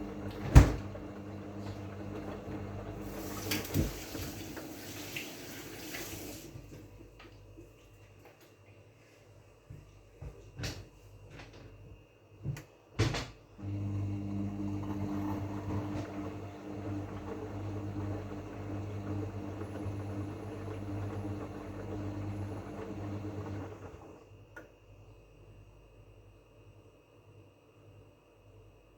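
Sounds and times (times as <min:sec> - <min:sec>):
washing machine motor hum: 0:00.0 - 0:07.9, 0:12.4 - 0:24.6
washing machine clicks and knocks: 0:00.3 - 0:01.0.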